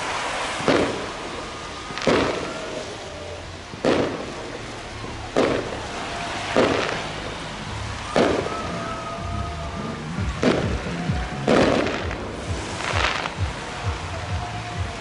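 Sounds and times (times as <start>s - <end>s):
firework shell bursts echoing: 0.0s - 3.0s, 3.7s - 7.4s, 10.3s - 14.0s.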